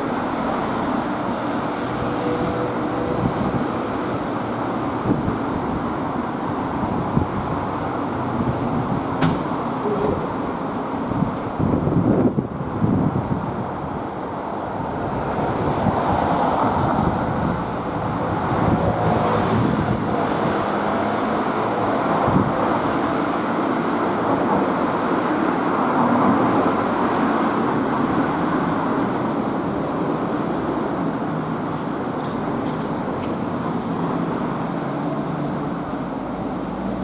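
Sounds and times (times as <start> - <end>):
road traffic noise: 0.0 - 37.0.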